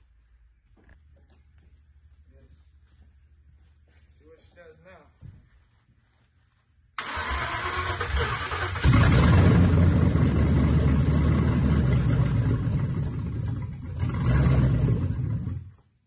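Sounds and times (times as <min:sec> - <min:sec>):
car engine cranking on starter: 0:07.0 - 0:15.7
car engine running: 0:08.8 - 0:15.7.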